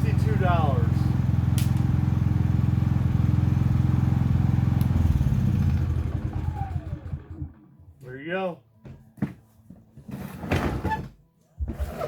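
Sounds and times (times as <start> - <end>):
engine whine spinning down: 0.0 - 7.8
generator engine running: 0.0 - 7.9.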